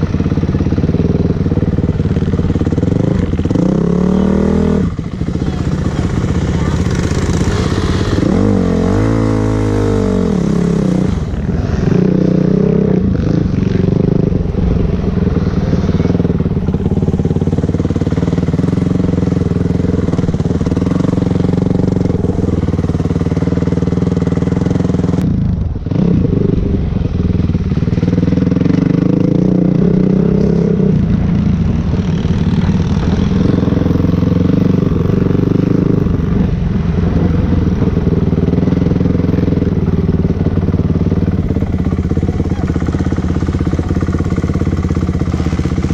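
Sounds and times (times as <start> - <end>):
dirt bike engine under throttle: 0.0 - 45.9.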